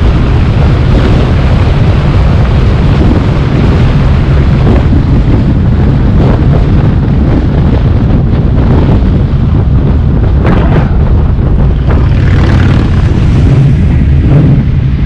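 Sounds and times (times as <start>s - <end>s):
car engine droning: 9.1s - 15.0s.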